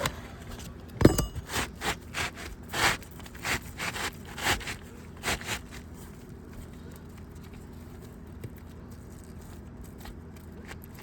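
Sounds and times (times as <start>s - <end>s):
shingle scraping: 0.0s - 6.0s.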